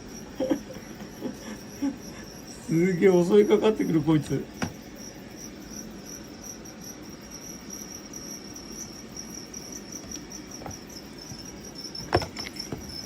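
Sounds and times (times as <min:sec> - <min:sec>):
high-pitched insect trill: 0:00.0 - 0:13.0.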